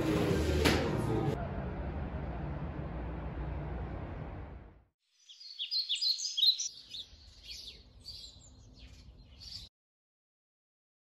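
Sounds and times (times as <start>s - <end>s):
small birds chirping: 5.1s - 9.7s.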